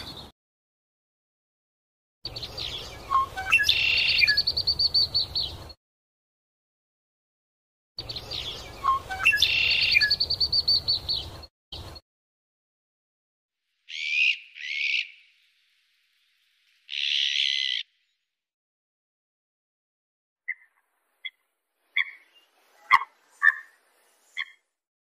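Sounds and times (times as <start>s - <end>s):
small birds chirping: 2.3s - 5.8s, 8.0s - 12.0s, 13.8s - 18.3s, 20.5s - 24.6s
short bird calls: 13.9s - 15.2s.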